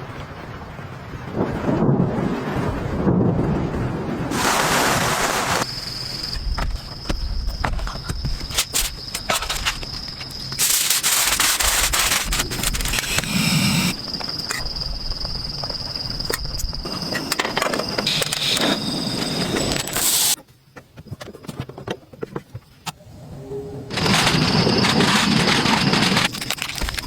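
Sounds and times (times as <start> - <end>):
high insect tone: 5.6 - 20.8.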